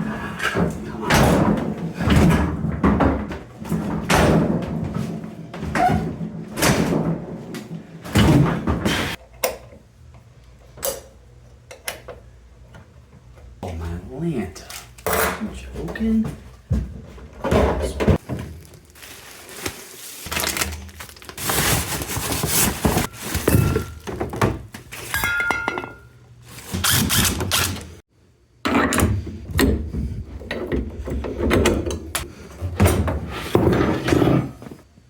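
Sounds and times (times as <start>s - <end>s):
refrigerator scraping against walls: 0.0s - 9.2s, 16.8s - 25.1s, 30.0s - 34.9s
thuds of refrigerator on stairs: 0.6s - 9.2s.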